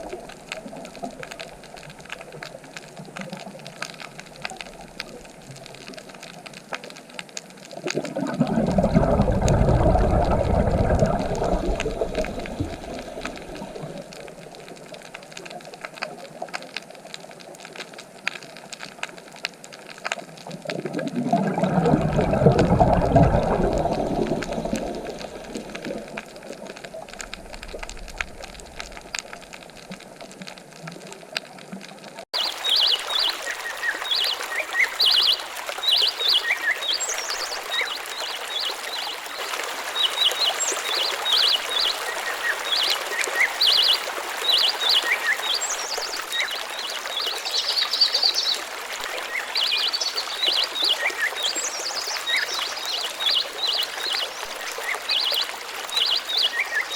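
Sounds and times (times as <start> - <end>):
flowing stream hiss: 0.0 - 31.4, 32.3 - 56.9
rushing water: 0.0 - 56.9
small birds chirping: 32.4 - 39.2.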